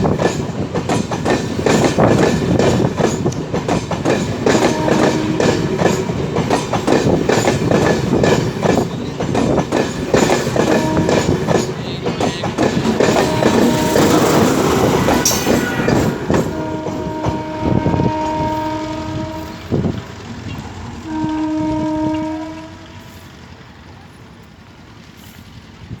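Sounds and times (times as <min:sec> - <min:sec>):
train wheel clatter: 0:00.0 - 0:26.0
train horn blasts: 0:04.4 - 0:06.1, 0:10.5 - 0:11.7, 0:13.0 - 0:23.4.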